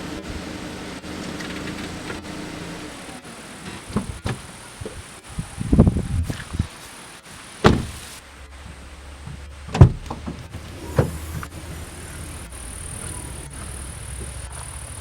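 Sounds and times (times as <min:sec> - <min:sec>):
low steady hum: 0:00.0 - 0:15.0
sharp thumps: 0:03.7 - 0:06.8, 0:07.6 - 0:08.2, 0:09.7 - 0:14.6.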